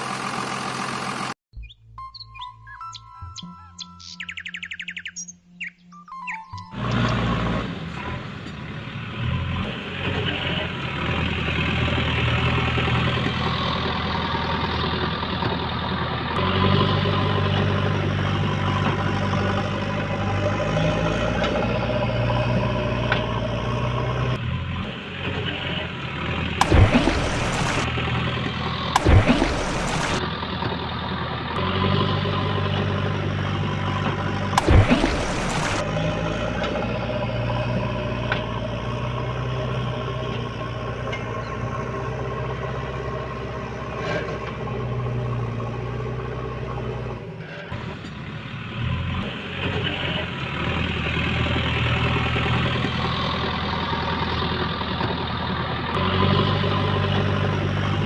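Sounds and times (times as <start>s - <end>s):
truck engine running: 0.0s - 58.0s
sudden loud bursts: 26.6s - 27.9s, 28.9s - 30.2s, 34.5s - 36.0s.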